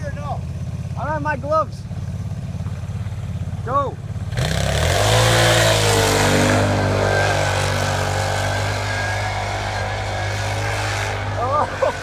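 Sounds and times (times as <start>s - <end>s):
snowmobile engine revving: 3.6s - 12.0s
wheels spinning in snow: 4.4s - 12.0s.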